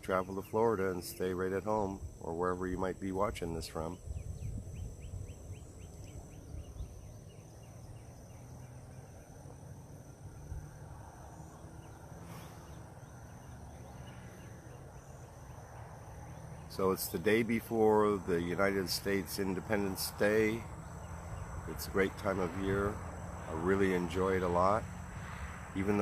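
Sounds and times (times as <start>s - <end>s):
insects trilling: 0.0s - 26.0s
wind rumble on microphone: 1.7s - 8.7s.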